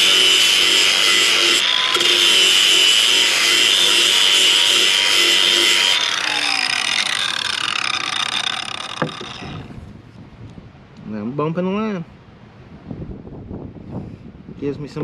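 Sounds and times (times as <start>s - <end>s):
angle grinder grinding wood: 0.0s - 9.9s.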